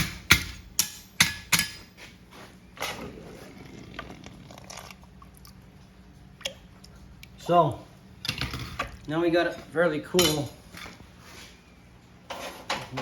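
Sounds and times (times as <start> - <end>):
hammer striking horseshoe on anvil: 0.0 - 1.9, 10.2 - 10.6.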